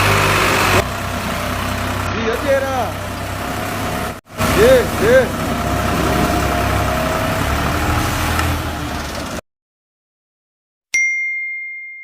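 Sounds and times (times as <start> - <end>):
tractor diesel engine rumbling: 0.0 - 9.4.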